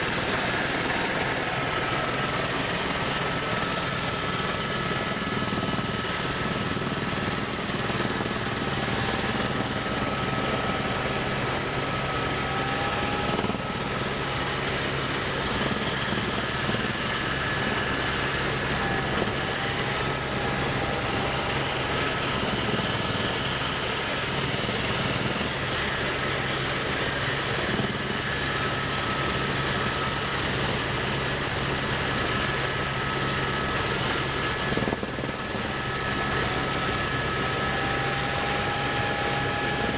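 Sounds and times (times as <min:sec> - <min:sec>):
broad rushing noise: 0:00.0 - 0:31.7
aircraft engine drone: 0:00.0 - 0:39.9.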